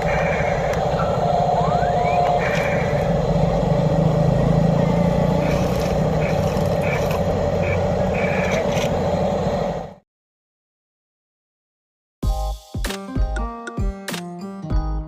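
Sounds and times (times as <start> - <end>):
engine rumbling and humming: 0.0 - 10.0.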